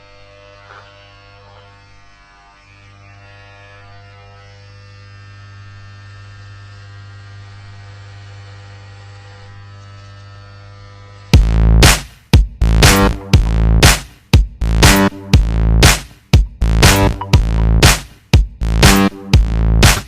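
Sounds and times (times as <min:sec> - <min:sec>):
electronic music with heavy beat: 0:11.4 - 0:20.0.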